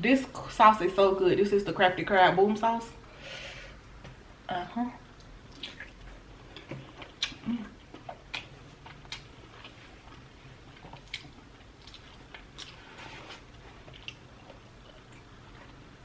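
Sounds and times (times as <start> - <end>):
wet chewing mouth clicks: 5.2 - 6.0, 6.6 - 10.2.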